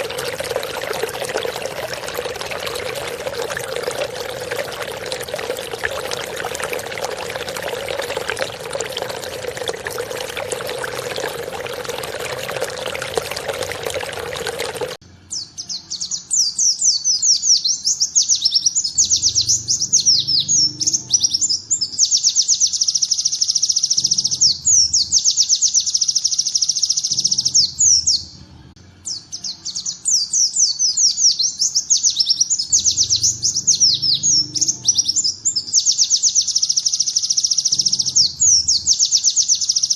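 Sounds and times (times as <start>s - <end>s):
rushing water-like noise: 0.0s - 15.0s.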